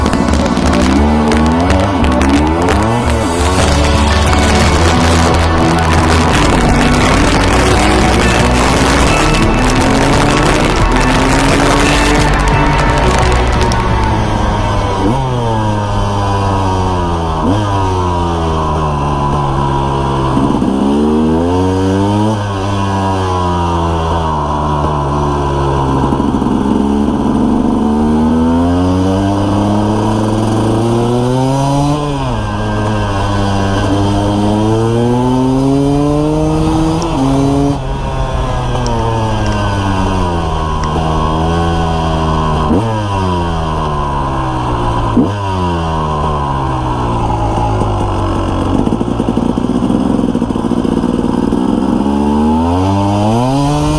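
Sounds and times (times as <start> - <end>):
two-stroke motorcycle engine revving: 0.0 - 53.9.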